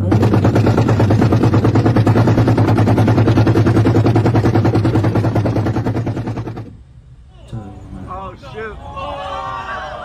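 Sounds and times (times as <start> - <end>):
rapid engine stutter: 0.0 - 6.8
car engine running hard: 0.0 - 7.0.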